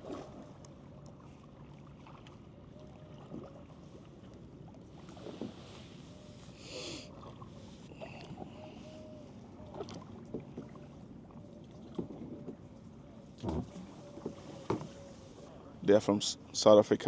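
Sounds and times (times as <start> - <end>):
paddle splashing in water: 0.0 - 9.0, 9.6 - 15.7.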